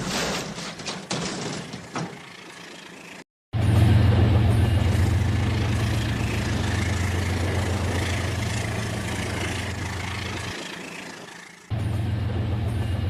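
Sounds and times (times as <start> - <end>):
wheels rumbling on rails: 0.0 - 13.0
model train motor hum: 5.0 - 11.7.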